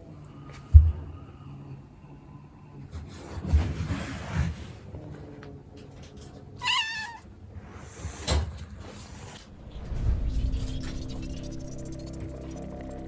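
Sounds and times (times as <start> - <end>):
cat meowing: 6.6 - 7.3.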